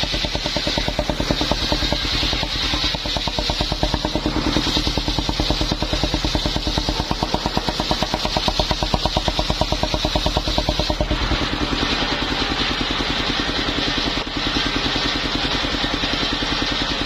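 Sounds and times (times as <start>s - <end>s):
hiss: 0.0s - 17.0s
sawmill engine chugging: 0.0s - 17.0s.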